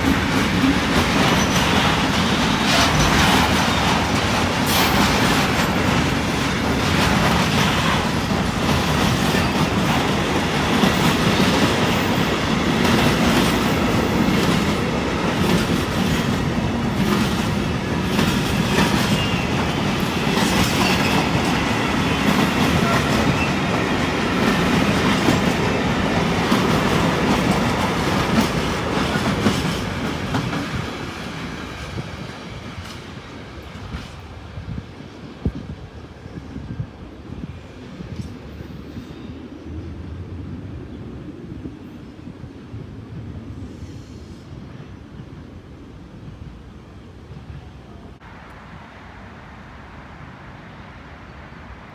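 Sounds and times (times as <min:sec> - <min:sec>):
train wheel squeal: 0:00.0 - 0:10.1, 0:15.3 - 0:34.4, 0:37.6 - 0:39.5, 0:43.6 - 0:45.1
freight train wheels clicking: 0:00.0 - 0:34.4.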